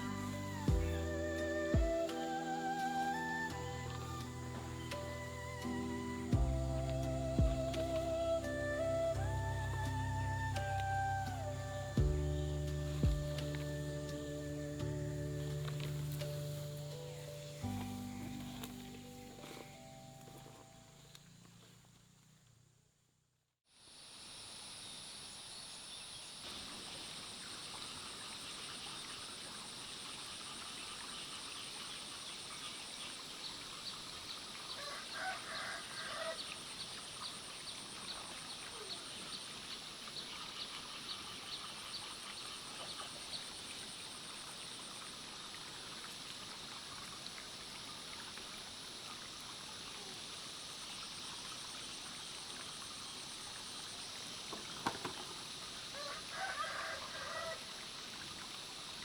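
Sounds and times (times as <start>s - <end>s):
insects trilling: 0.0s - 22.4s, 33.8s - 45.3s, 46.9s - 59.0s.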